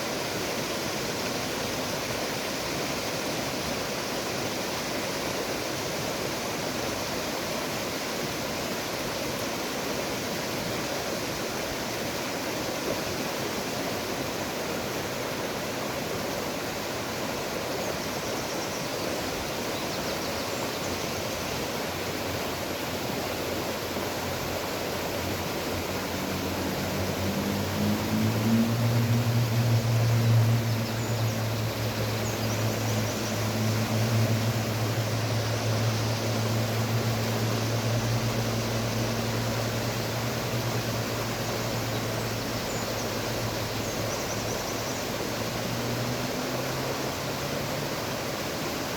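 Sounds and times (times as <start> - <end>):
flowing river water: 0.0 - 48.9
low engine drone: 23.5 - 48.6.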